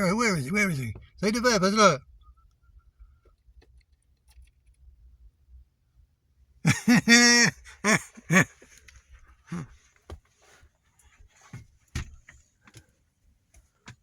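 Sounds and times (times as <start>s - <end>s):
man making wordless sounds: 0.0s - 2.0s, 6.7s - 8.5s.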